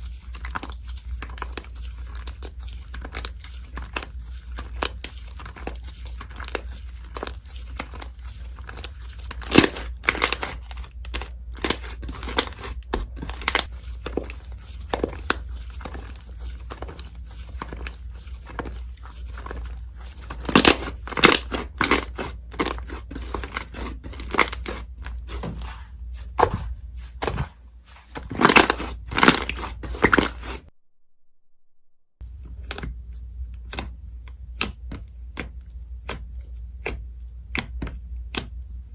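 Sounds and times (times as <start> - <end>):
slime crackling and popping: 0.3 - 17.0, 20.2 - 24.8.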